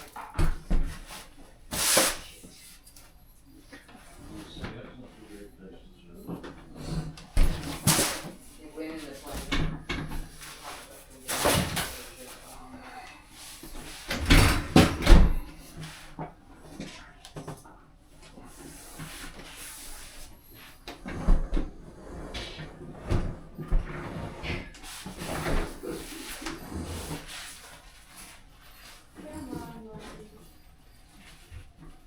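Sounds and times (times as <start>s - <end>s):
knocks clunks and scrapes: 20.4s - 27.7s.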